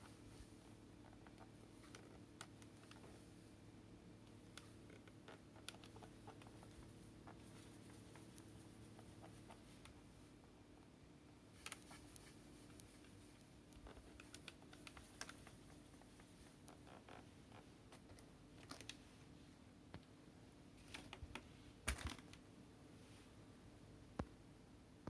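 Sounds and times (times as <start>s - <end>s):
low steady hum: 0.0s - 25.0s
faint clicks and taps: 1.0s - 3.2s, 4.2s - 10.0s, 11.6s - 19.0s, 19.9s - 20.2s, 24.2s - 24.4s.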